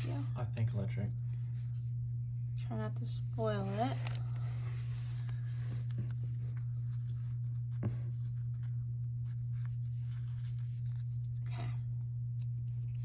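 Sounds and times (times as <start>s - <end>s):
steady low hum: 0.0s - 13.0s
cards rustling and clicking: 3.6s - 13.0s.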